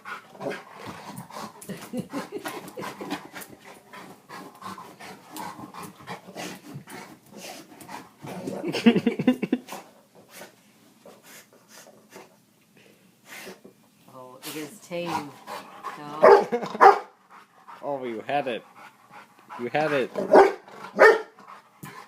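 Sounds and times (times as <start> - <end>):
dog panting: 0.0 - 9.0, 14.9 - 22.0.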